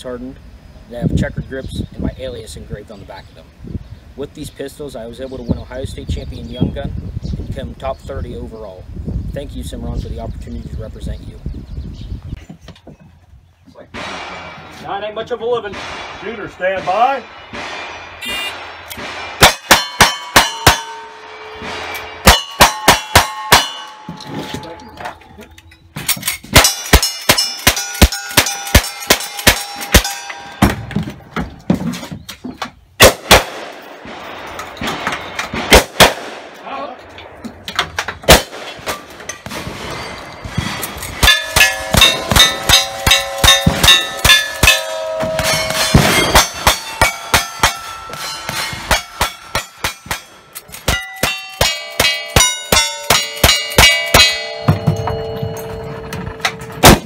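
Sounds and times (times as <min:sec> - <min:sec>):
steel target clanging: 0:13.9 - 0:31.0, 0:38.0 - 0:57.0
rifle shots: 0:14.0 - 0:14.8, 0:15.6 - 0:23.9, 0:33.0 - 0:36.6, 0:38.2 - 0:40.0.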